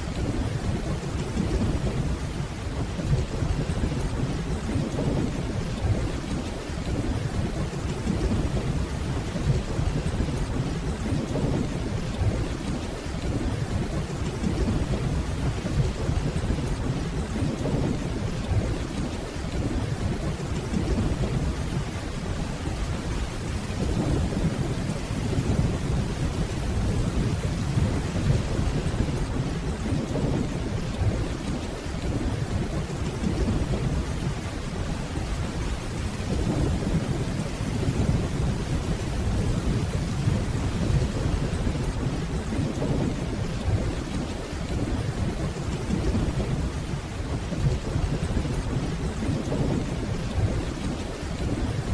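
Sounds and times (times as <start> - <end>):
rain falling: 0.0 - 51.9.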